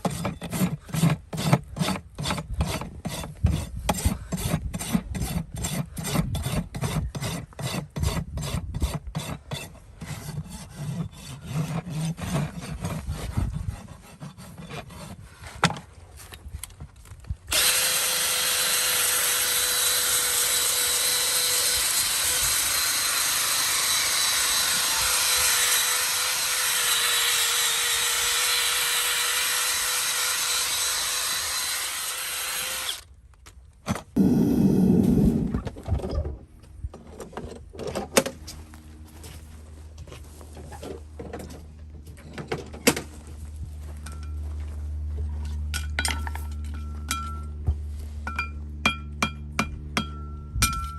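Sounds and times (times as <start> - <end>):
rasp filing a hoof: 0.0 - 16.3, 17.5 - 33.0
power tool humming: 17.5 - 33.0, 34.2 - 35.5.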